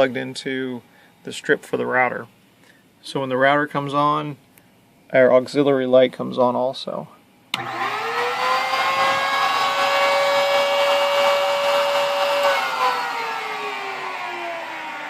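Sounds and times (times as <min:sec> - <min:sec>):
router spindle motor whine: 0:07.6 - 0:15.0.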